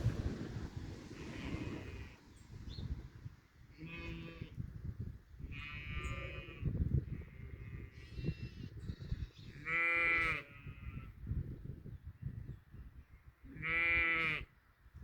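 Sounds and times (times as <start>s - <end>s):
low rumbling noise: 0.0s - 3.4s
sheep bleating: 3.8s - 4.5s, 5.5s - 8.6s, 9.6s - 11.1s, 13.5s - 14.5s.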